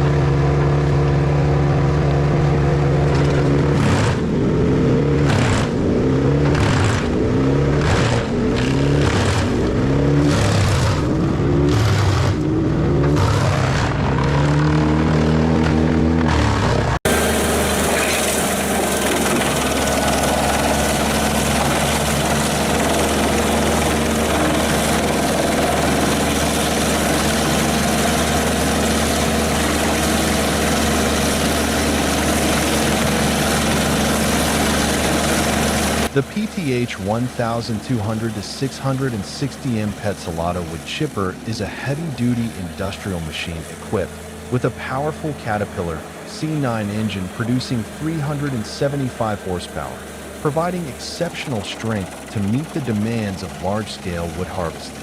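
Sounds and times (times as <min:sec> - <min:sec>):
wood chipper engine: 0:00.0 - 0:55.0
wood chipping noise: 0:17.1 - 0:36.2
continuous grinding hiss: 0:17.1 - 0:55.0.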